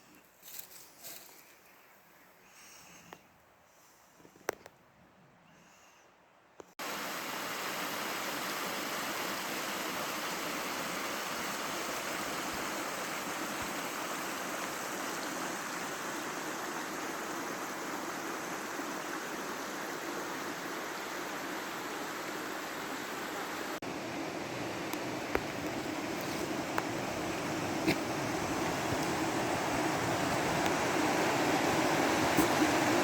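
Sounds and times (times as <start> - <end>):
water rushing over rocks: 6.8 - 33.0.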